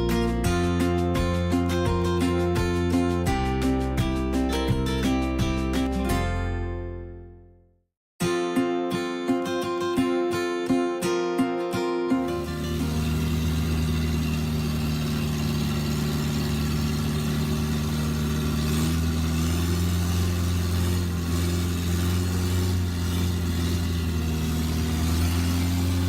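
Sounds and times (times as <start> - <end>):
boat engine running: 12.3 - 26.0.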